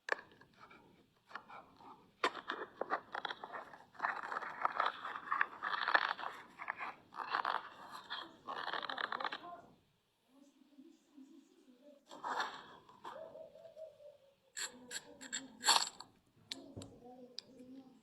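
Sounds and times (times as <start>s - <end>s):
crunching and scraping: 2.2s - 9.6s.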